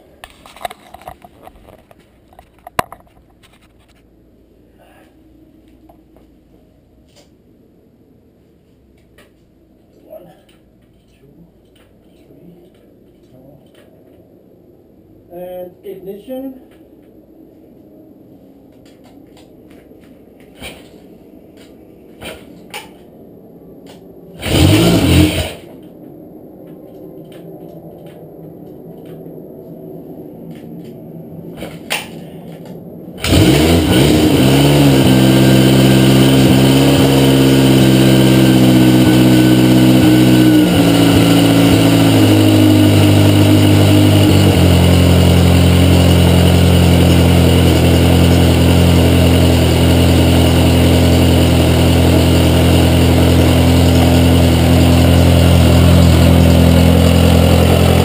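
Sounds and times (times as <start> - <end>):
motorcycle engine starting and idling: 24.4 - 25.8, 31.7 - 58.0.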